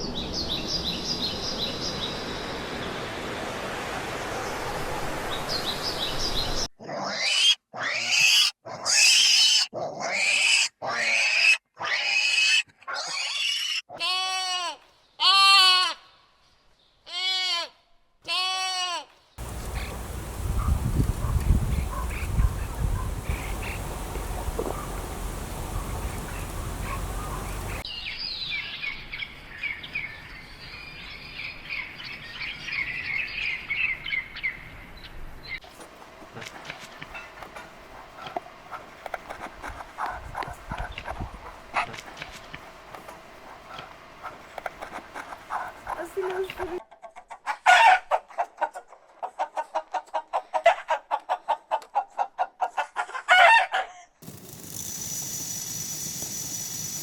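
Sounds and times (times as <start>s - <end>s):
chicken clucking: 19.4s - 27.8s, 43.7s - 53.5s
chicken squawk: 19.4s - 27.8s, 47.5s - 48.7s, 49.3s - 54.0s
steady hiss: 19.4s - 27.8s, 54.2s - 57.0s
chorus of birds chirping: 19.4s - 27.9s.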